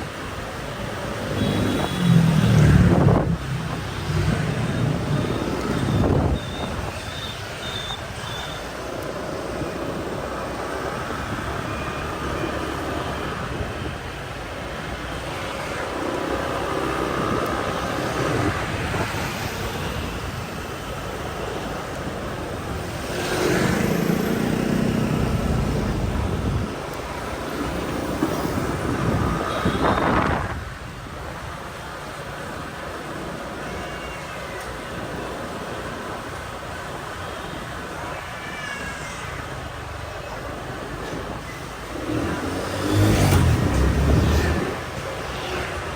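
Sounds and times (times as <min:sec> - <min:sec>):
hum of surrounding traffic: 0:00.0 - 0:45.9
vehicle passing loudly: 0:01.4 - 0:06.3, 0:41.8 - 0:45.9.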